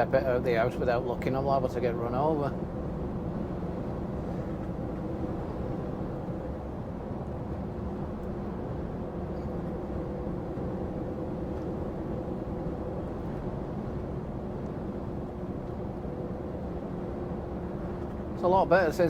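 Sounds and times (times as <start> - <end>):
lorry engine drone: 0.0 - 19.0
road rumble: 0.0 - 19.0.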